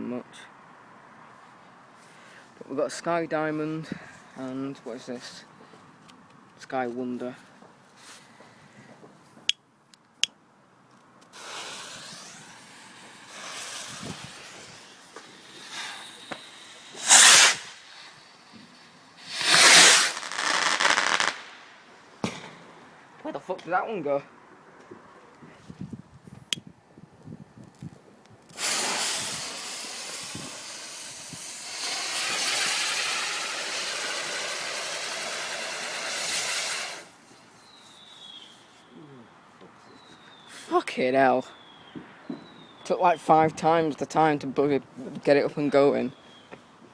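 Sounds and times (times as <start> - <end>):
firework fuse hissing: 11.3 - 22.5, 28.5 - 38.8.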